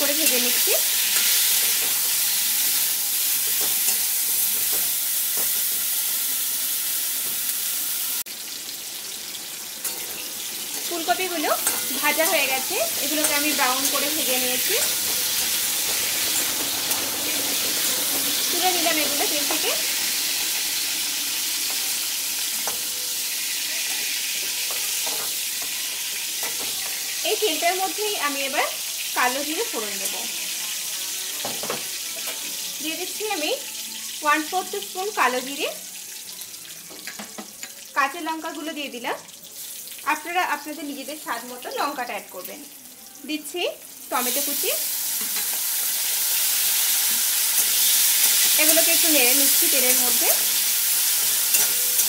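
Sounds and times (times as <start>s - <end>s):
vegetables sizzling in oil: 0.0s - 52.0s
metal spatula stirring: 11.6s - 17.0s, 51.1s - 52.0s.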